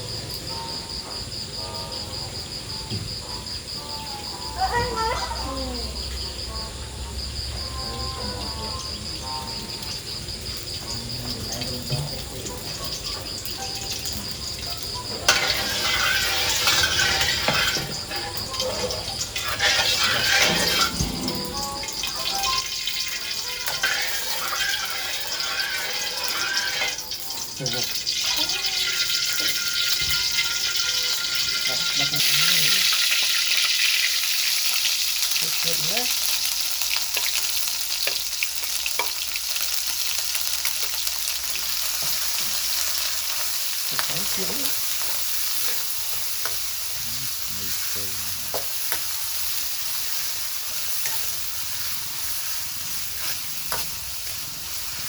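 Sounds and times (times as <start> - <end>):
food sizzling in a pan: 0.0 - 55.0
oil popping and crackling: 9.1 - 55.0
utensil clinking against pan: 10.8 - 32.8.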